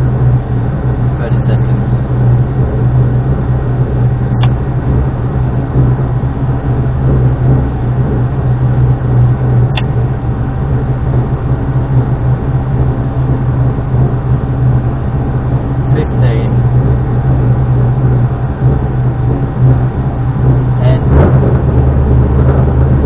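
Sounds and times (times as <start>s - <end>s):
rally car engine running: 0.0s - 23.0s
sharp clicks: 9.7s - 9.9s.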